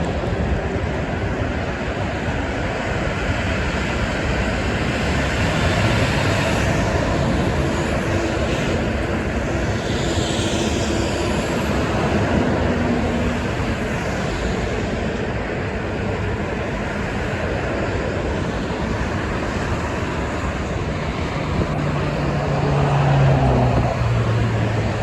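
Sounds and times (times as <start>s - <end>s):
highway traffic: 0.0s - 25.0s
vehicles sweeping by: 18.8s - 25.0s.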